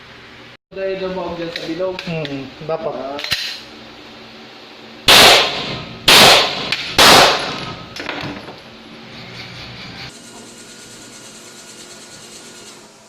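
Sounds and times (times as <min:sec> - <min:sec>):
pistol shots with echo: 0:05.1 - 0:07.6.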